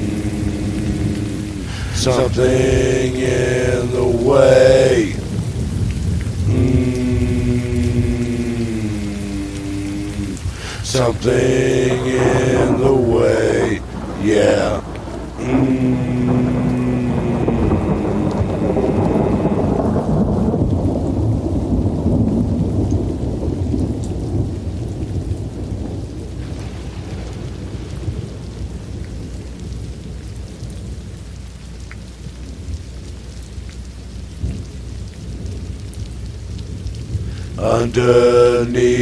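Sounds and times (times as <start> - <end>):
thunder crack: 0.0 - 24.6, 25.8 - 28.9
thunder rumbling: 0.0 - 30.1
steady rain: 0.0 - 39.0.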